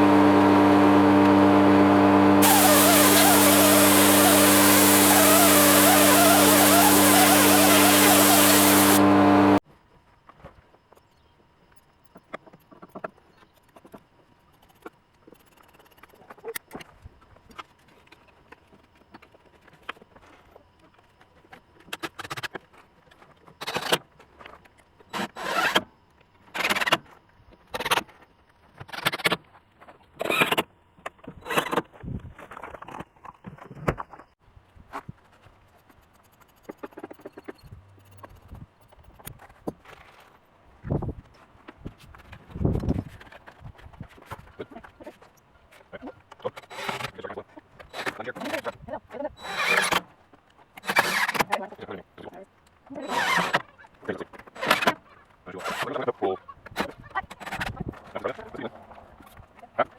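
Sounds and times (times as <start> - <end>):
scraping strokes: 2.4 - 9.1.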